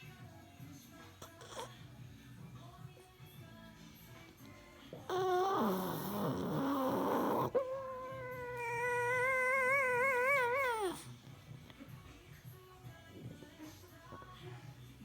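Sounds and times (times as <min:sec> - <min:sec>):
dog rough vocal sound: 0:04.9 - 0:11.2
dog whining howl: 0:05.1 - 0:11.1.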